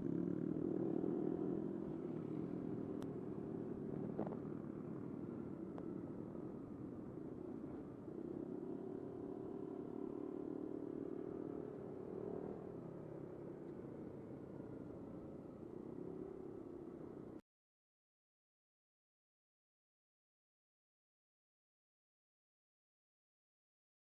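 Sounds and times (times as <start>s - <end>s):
scooter engine running: 0.0s - 15.1s.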